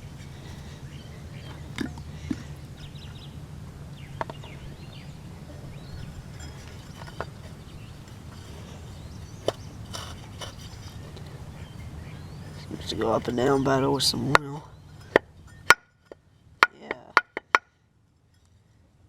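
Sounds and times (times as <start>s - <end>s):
steady low hum: 0.0s - 19.0s
sharp metal clicks and knocks: 12.5s - 17.7s.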